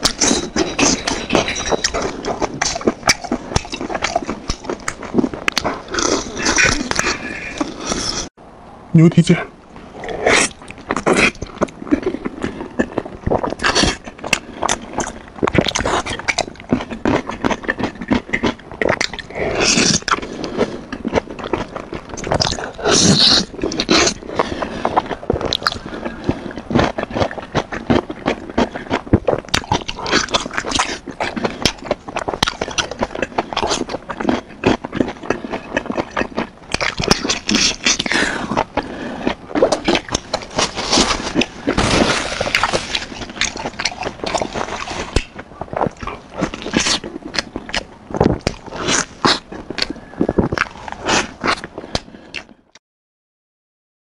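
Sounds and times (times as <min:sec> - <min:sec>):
wet chewing and lip smacks: 0:00.0 - 0:07.7, 0:42.4 - 0:52.5
slurping: 0:00.0 - 0:08.3, 0:10.0 - 0:52.5.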